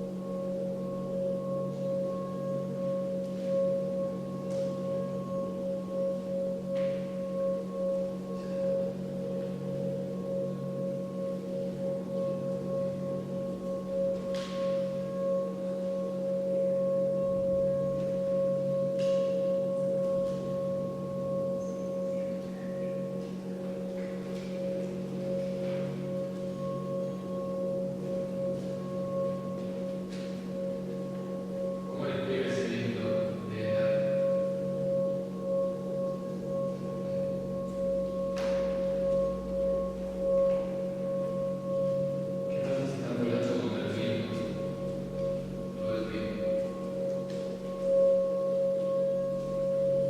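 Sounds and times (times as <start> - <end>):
low steady hum: 0.0 - 50.0
sustained ringing drone: 0.0 - 50.0
faint high chirps: 21.4 - 23.2.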